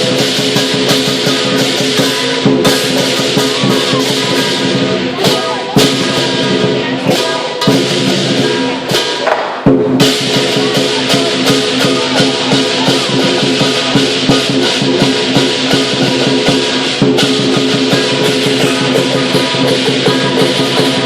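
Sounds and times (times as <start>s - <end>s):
clashing cymbals: 0.0s - 21.0s
drum beaten rapidly: 0.0s - 21.0s
ringing gong: 10.2s - 21.0s.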